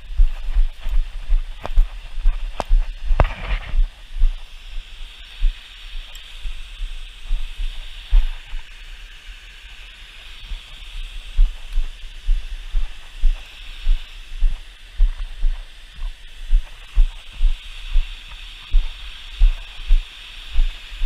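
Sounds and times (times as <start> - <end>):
deep thumps and rumble: 0.0 - 5.6
steady high hiss: 0.0 - 21.0.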